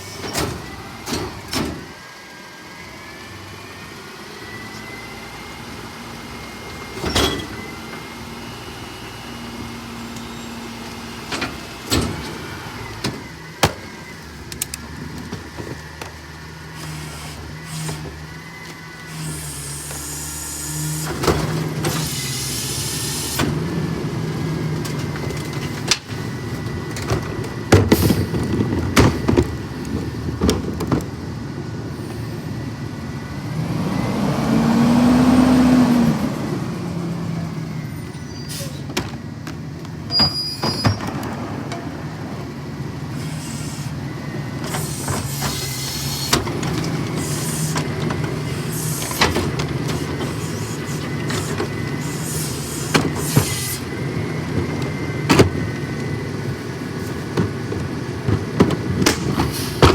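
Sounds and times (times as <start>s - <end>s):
garbage truck hydraulics whining: 0.0s - 59.9s
air hiss bursts: 22.0s - 23.4s, 50.3s - 53.8s.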